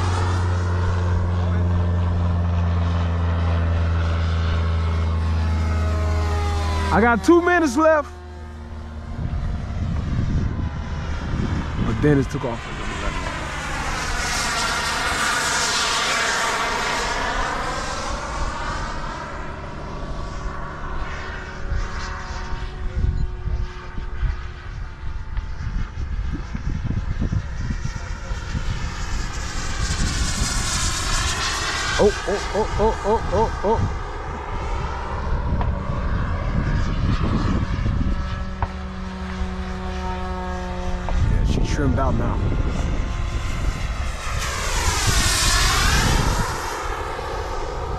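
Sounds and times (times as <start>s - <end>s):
model airplane engine whine: 0.0s - 47.9s
low rumble of noise: 24.8s - 38.3s.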